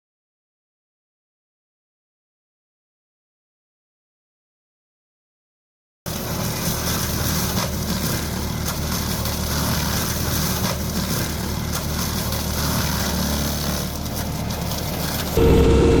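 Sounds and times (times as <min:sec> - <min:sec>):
skid steer engine running: 0:06.1 - 0:16.0.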